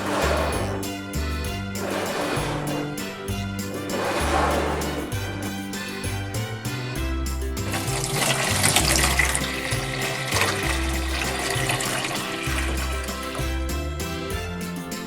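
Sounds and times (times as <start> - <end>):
upbeat background music: 0.0 - 15.0
water rushing and splashing: 1.8 - 3.2, 3.8 - 5.6, 7.6 - 13.8.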